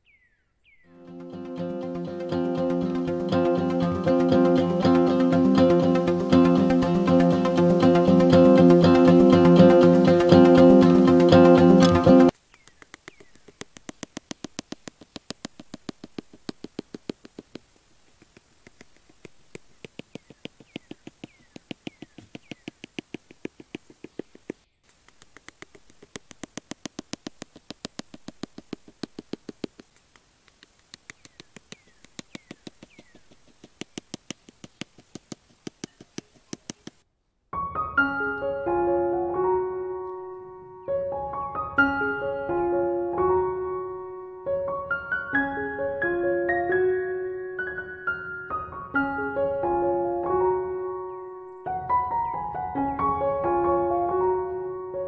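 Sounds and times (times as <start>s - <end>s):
piano music: 0.9s - 12.3s, 37.6s - 55.0s.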